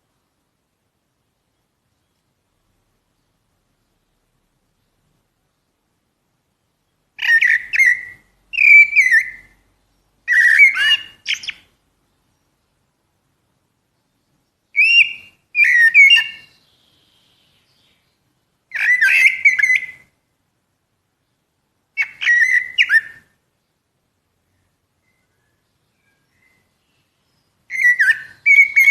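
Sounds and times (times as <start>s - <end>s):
blackbird singing fluty phrases: 6.8s - 12.8s, 13.9s - 20.3s, 21.2s - 28.9s.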